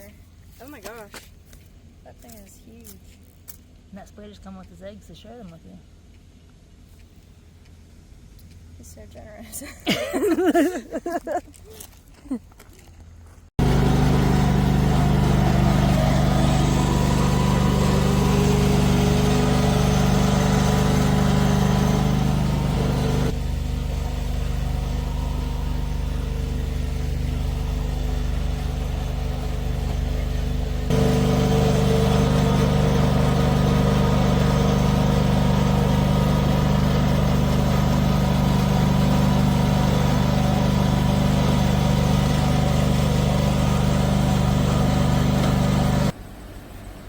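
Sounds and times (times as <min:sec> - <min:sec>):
engine idling: 0:13.6 - 0:46.2.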